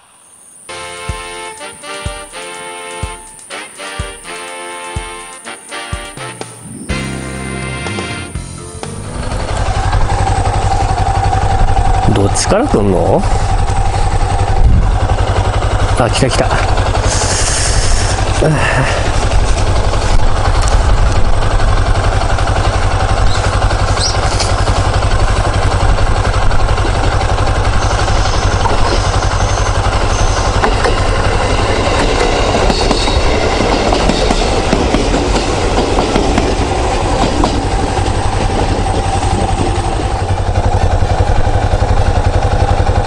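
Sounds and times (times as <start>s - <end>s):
electric train passing: 0.0s - 43.0s
wheels clicking over rail joints: 8.8s - 43.0s.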